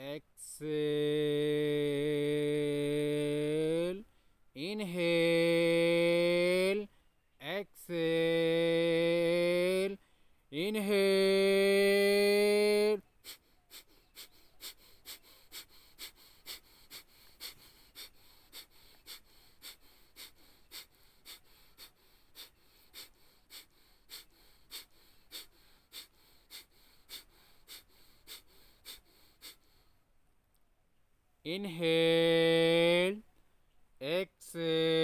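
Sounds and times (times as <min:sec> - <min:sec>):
forceful nasal exhalations: 0:13.2 - 0:30.0.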